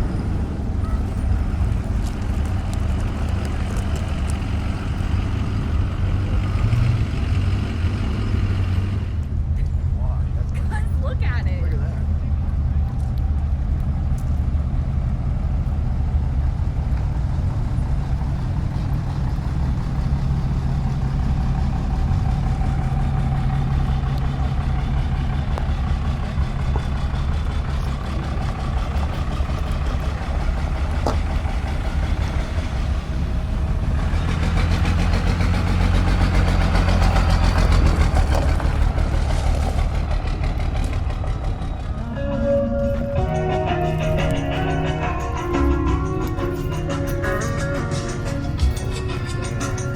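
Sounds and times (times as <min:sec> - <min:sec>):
truck engine rumbling: 0:00.0 - 0:49.9.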